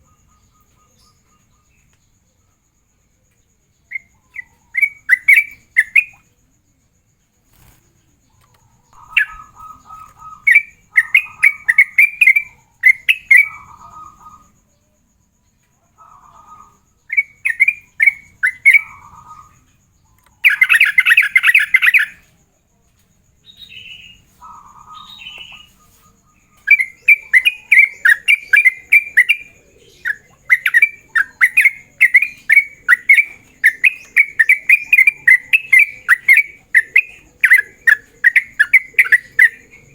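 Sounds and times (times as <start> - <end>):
bulbul singing rapid chirps: 3.9 - 6.3, 8.6 - 14.7, 16.5 - 22.3, 23.4 - 39.9.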